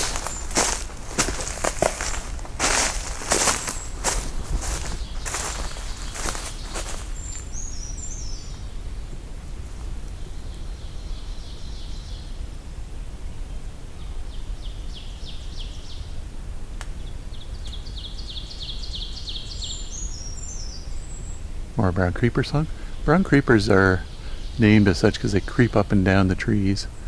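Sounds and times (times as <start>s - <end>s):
low outdoor rumble: 0.0s - 14.3s.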